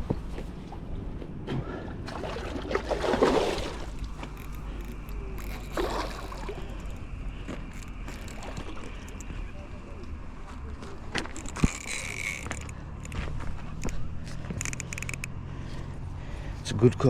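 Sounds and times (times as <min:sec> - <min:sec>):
water splashing and sloshing: 0:00.4 - 0:09.6.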